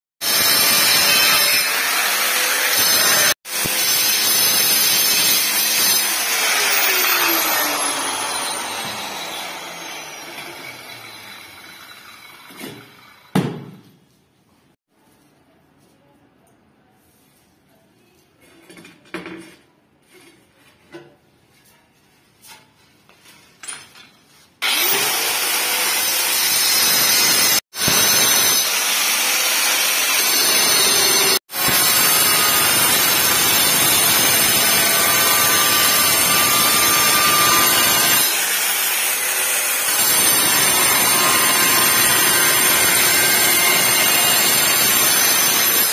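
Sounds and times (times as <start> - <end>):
electric drill cutting tile: 0.2 - 13.3, 24.6 - 45.9.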